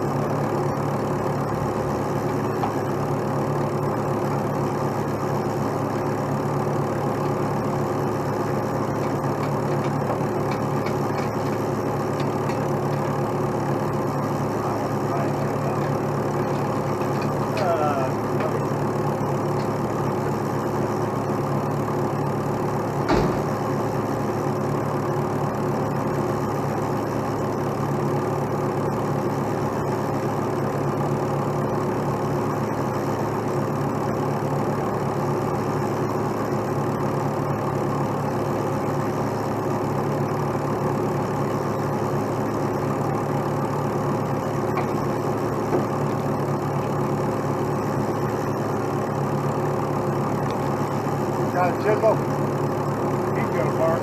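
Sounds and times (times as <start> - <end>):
diesel truck engine idling: 0.0 - 54.0
sharp metallic knock: 23.0 - 23.6.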